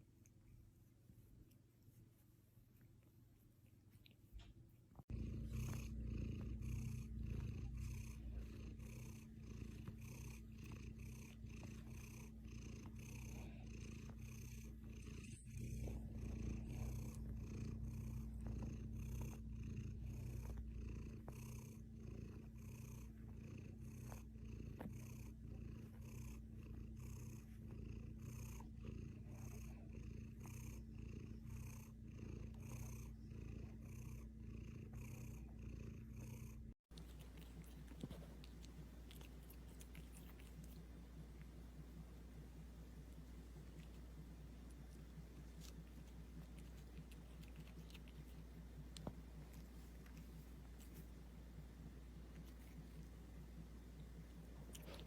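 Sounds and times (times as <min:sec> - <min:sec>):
cat purring: 0:00.0 - 0:55.0.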